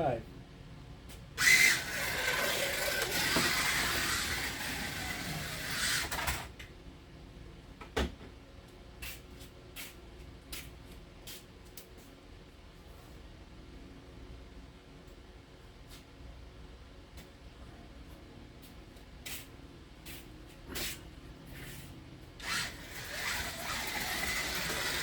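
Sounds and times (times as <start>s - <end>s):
slot car motor whining: 1.4s - 6.5s, 22.4s - 25.0s.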